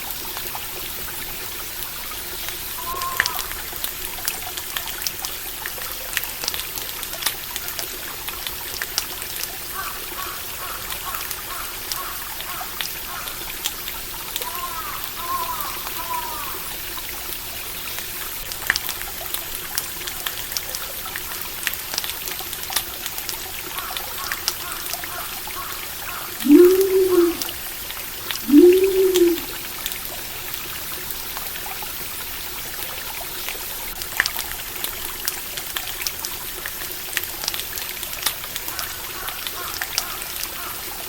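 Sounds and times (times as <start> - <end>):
stream water trickling: 0.0 - 41.0
low animal calls: 2.8 - 3.6, 26.4 - 27.5, 28.4 - 29.7.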